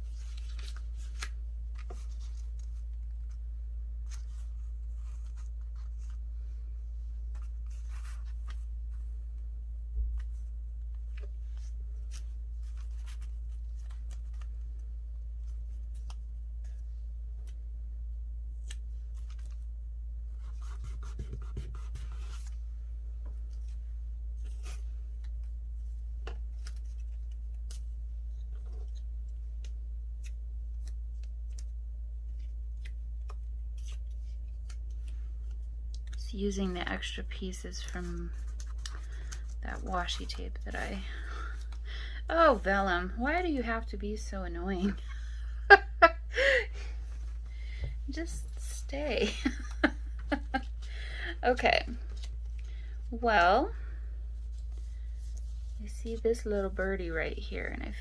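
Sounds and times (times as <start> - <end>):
paper rustling: 0.0 - 3.4, 37.0 - 41.8
steady low hum: 0.0 - 58.0.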